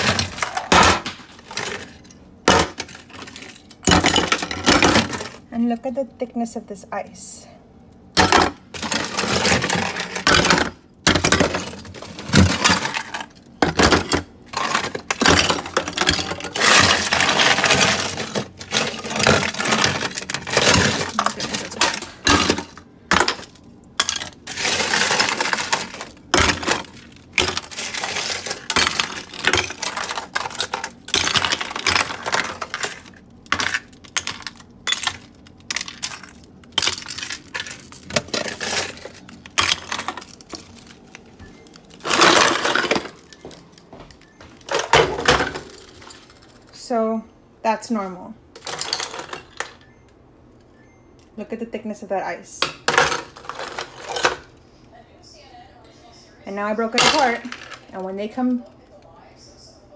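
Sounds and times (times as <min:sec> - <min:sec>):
ice pieces cracking and clinking: 0:08.7 - 0:46.6.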